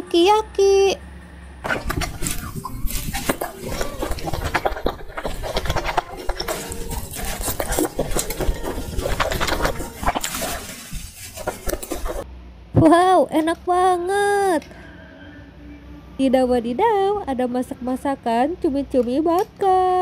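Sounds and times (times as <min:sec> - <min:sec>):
wet chewing clicks and smacks: 0:01.8 - 0:12.2.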